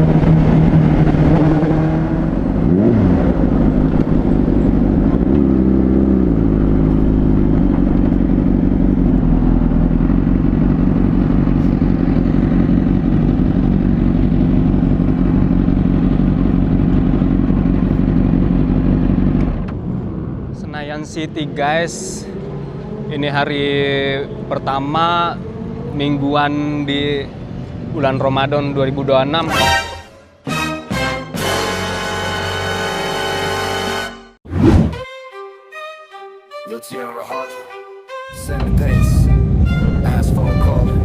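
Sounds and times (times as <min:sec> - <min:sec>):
road and wind noise: 0:00.0 - 0:29.7, 0:38.5 - 0:41.0
motorcycle engine: 0:00.0 - 0:30.6.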